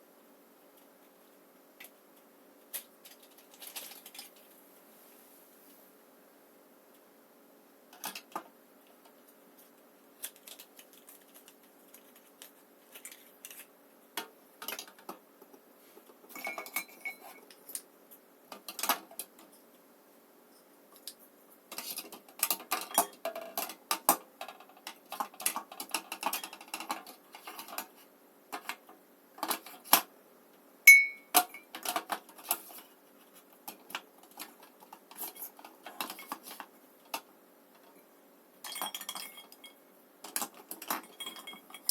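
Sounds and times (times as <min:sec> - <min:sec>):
short ringing clinks: 0:30.9 - 0:31.3.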